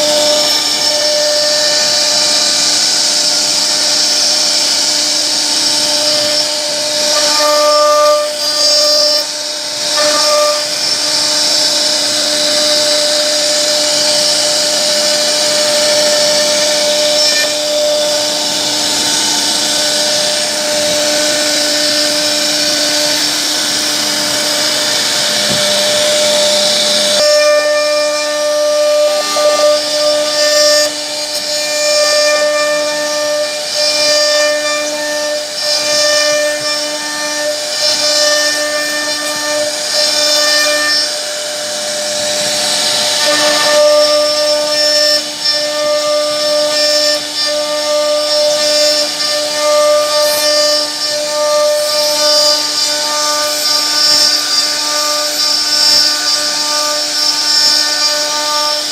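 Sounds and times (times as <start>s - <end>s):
router spindle whine: 0.0s - 58.9s.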